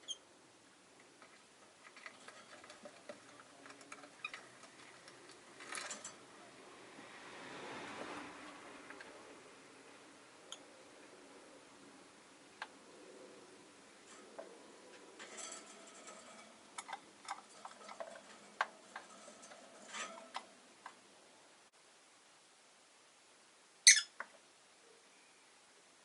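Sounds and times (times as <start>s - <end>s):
rustling: 0.9s - 6.6s, 13.3s - 21.7s
birds clicking and tapping in cage: 1.0s - 6.4s, 14.0s - 21.0s.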